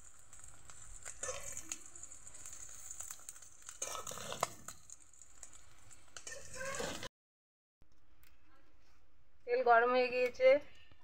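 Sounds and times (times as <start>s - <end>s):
food sizzling in oil: 0.0s - 7.1s
metal spatula scraping pan: 1.0s - 5.6s, 6.2s - 7.1s.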